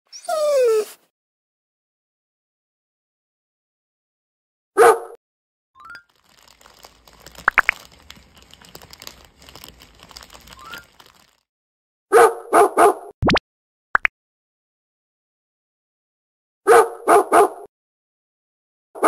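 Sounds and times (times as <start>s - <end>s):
dog barking: 4.8s - 5.2s, 12.1s - 13.1s, 16.7s - 17.7s
campfire crackling: 6.1s - 11.4s.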